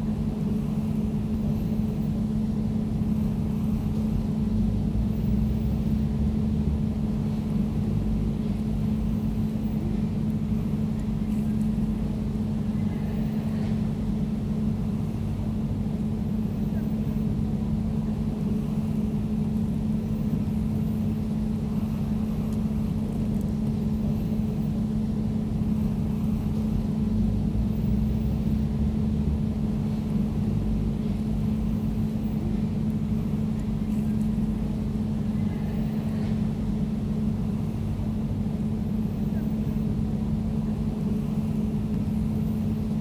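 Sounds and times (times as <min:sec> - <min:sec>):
air conditioner humming: 0:00.0 - 0:43.0.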